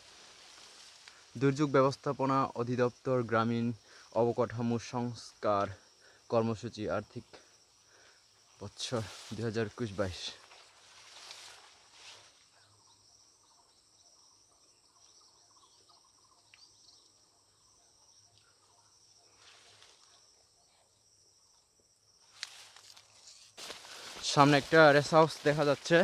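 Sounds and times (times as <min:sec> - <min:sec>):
soft rustles: 0:00.0 - 0:01.4, 0:08.8 - 0:12.5, 0:22.3 - 0:26.0
high-pitched insect chorus: 0:00.0 - 0:26.0.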